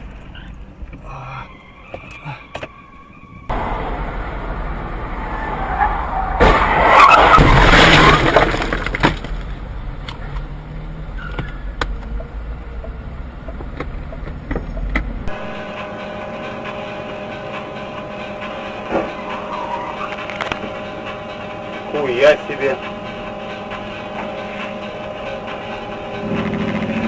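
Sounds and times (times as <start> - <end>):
engine hum: 0.0 - 27.0
road rumble: 0.0 - 27.0
loud rushing noise: 3.5 - 9.0.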